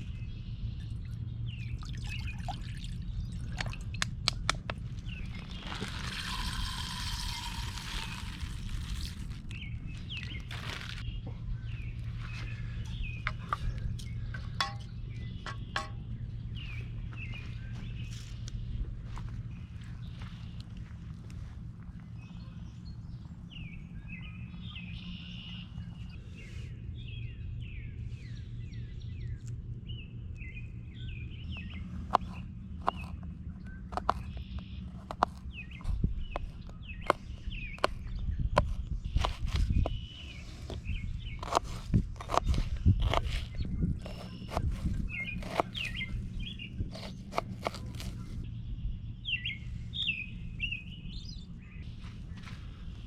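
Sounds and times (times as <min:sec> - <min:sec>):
small birds chirping: 0:00.0 - 0:53.0
steady low rumble: 0:00.0 - 0:53.0
sharp clicks and knocks: 0:32.1 - 0:33.3.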